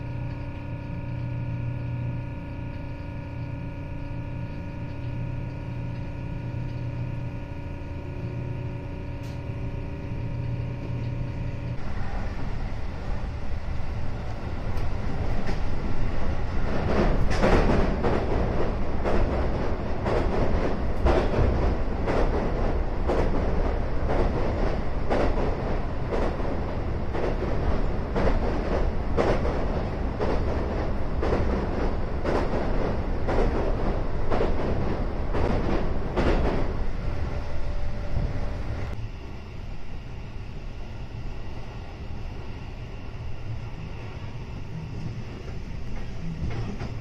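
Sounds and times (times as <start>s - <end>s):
train wheels rumbling on rail: 0.0s - 47.0s
wheels clacking over rail joints: 14.4s - 36.9s.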